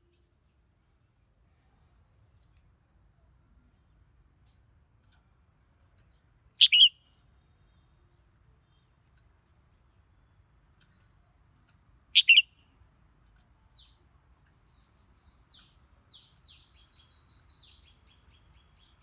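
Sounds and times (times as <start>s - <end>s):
bird calling: 6.6s - 7.0s, 12.2s - 12.5s
short repeated bird chirps: 6.6s - 7.2s, 12.2s - 12.7s.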